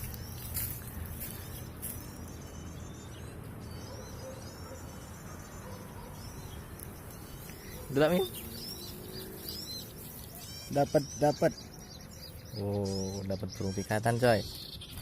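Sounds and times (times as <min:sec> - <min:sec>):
insects chirping: 0:03.9 - 0:12.6.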